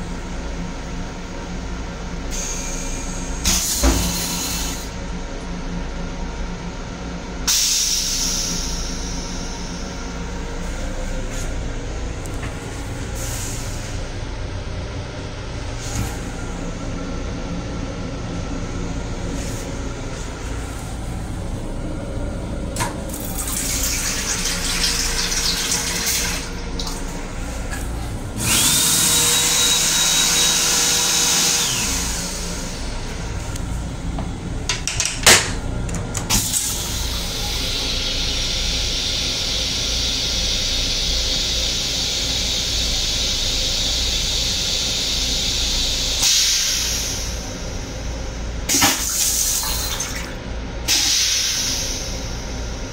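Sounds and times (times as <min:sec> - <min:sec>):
toilet motor whining: 0:02.2 - 0:05.5, 0:15.2 - 0:52.9.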